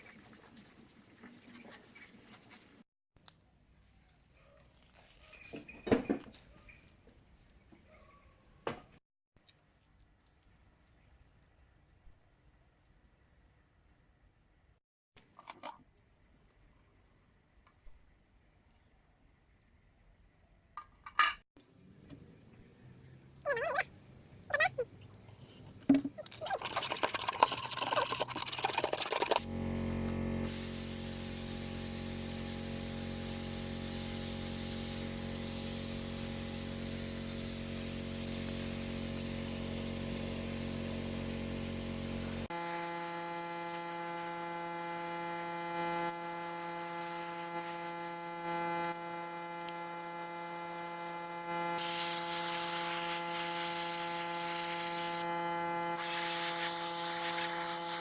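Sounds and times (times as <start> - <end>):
small machine hissing: 30.4 - 58.0.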